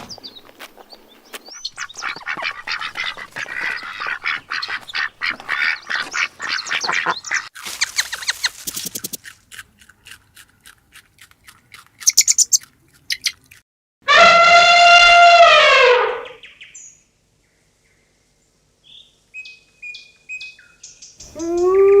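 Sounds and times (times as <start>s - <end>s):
birds calling and squawking: 0.0s - 8.7s.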